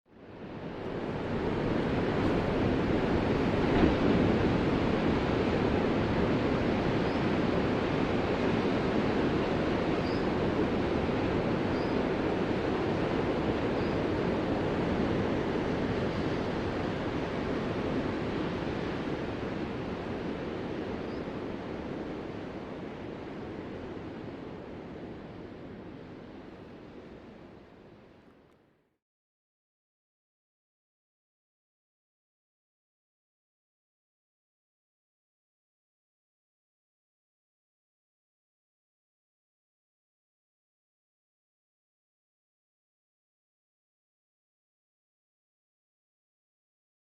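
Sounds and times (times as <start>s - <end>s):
waves breaking: 0.7s - 27.3s.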